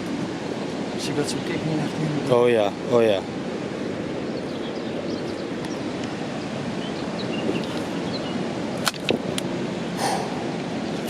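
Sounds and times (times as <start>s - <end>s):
wind noise on microphone: 3.4s - 11.0s.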